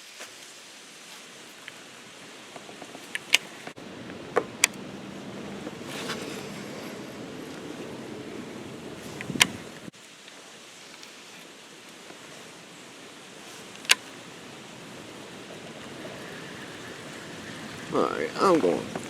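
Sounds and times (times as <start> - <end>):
wind noise: 2.0 - 9.9, 12.1 - 19.0
sharp clicks: 8.9 - 9.9.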